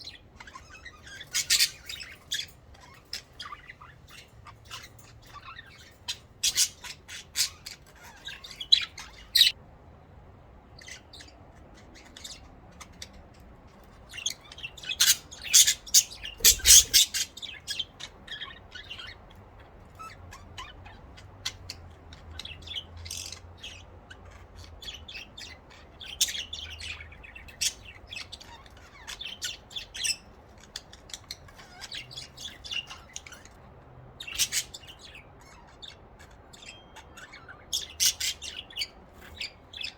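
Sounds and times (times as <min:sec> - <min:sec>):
budgerigars chirping and squawking: 0:00.0 - 0:09.6, 0:10.6 - 0:39.9.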